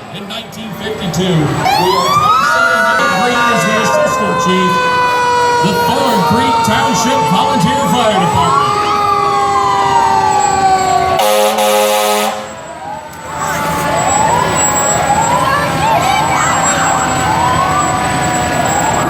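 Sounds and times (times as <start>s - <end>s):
fire truck siren wailing: 0.0s - 19.0s
air horn blast: 11.2s - 12.6s.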